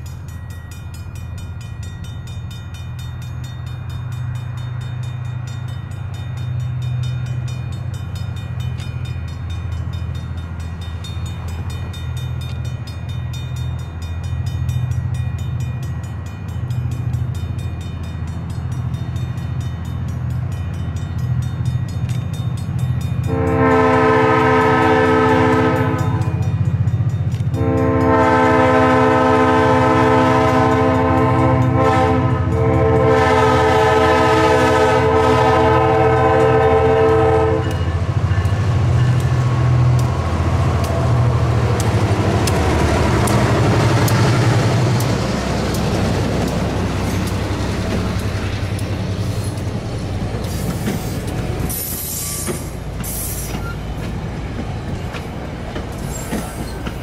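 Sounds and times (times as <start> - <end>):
locomotive engine rumble: 0.0 - 57.0
locomotive air horn blasts: 23.2 - 26.4, 27.6 - 38.0
train wheels clacking over rail joints: 36.0 - 57.0.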